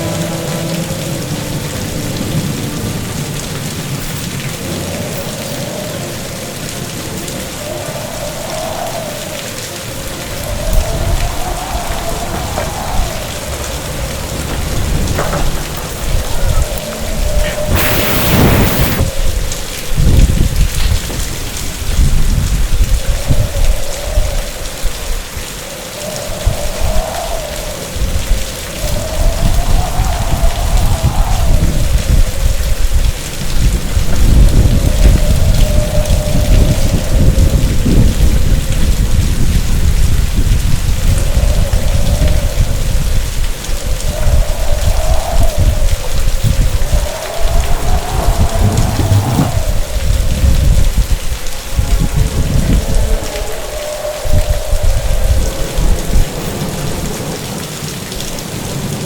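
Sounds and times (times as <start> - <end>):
thunder crack and rumble: 0.0 - 25.5, 26.1 - 59.0
heavy rain pouring: 0.0 - 59.0
low rumble: 10.2 - 19.2, 45.6 - 53.2.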